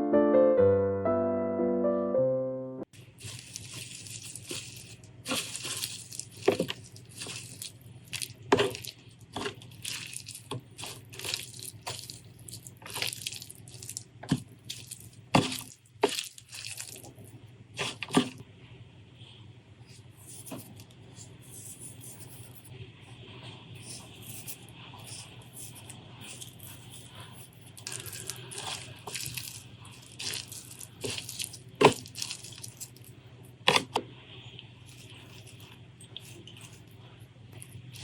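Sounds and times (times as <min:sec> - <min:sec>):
crisp snaps: 0:03.0 - 0:18.4, 0:25.1 - 0:33.1
wet chewing and mouth smacks: 0:03.0 - 0:18.4, 0:23.8 - 0:33.1, 0:34.9 - 0:38.0.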